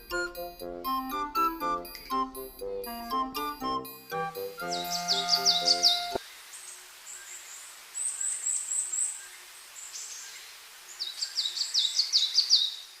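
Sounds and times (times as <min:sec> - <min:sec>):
downward sliding whistled notes: 0:00.0 - 0:06.2
faint hiss: 0:00.0 - 0:13.0
high bird chirps: 0:03.3 - 0:06.2.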